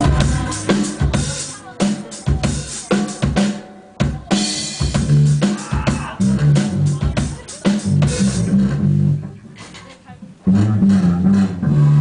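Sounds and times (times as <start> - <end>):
low bass notes: 0.0 - 2.9, 4.0 - 9.6, 10.3 - 12.0
drum kit beat: 0.0 - 9.4.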